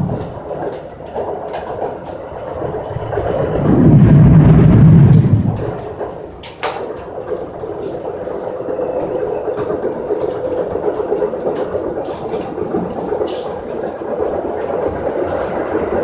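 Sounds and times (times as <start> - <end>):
train wheels rumbling on rail: 0.0 - 16.0
loud low rumble: 2.2 - 6.2.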